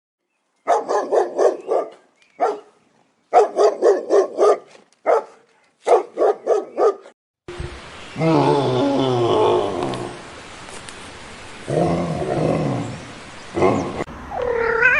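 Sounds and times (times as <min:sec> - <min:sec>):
dog barking: 0:00.7 - 0:07.1.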